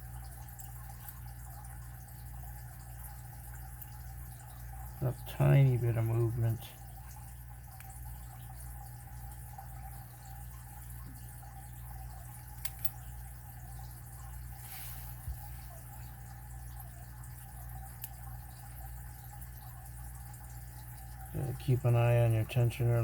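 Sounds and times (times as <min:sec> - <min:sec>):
steady low hum: 0:00.0 - 0:23.0
lock pick clicking in padlock: 0:12.6 - 0:13.0.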